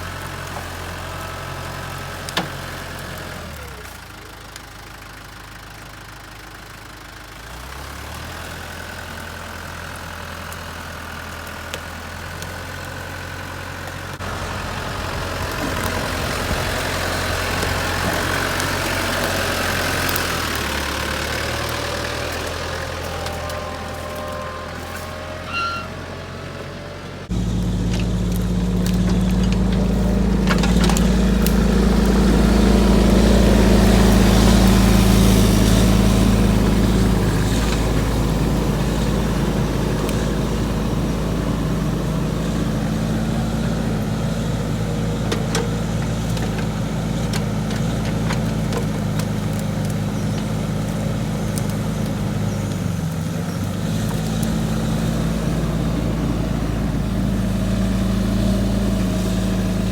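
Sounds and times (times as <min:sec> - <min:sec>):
excavator engine running: 0:00.0 - 0:59.9
sharp cracks and clicks: 0:45.3 - 0:54.7.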